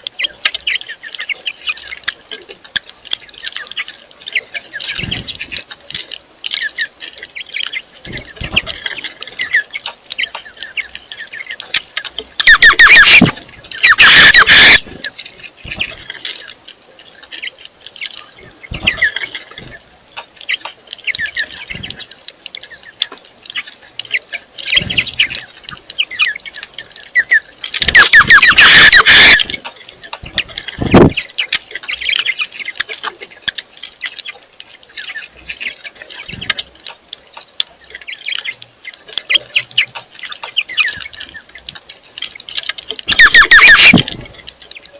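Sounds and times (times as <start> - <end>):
harsh bird squawking: 12.4 - 14.9, 27.9 - 29.5, 43.1 - 44.1
birds chirping rapidly: 12.4 - 16.5, 17.4 - 29.6, 43.1 - 44.0.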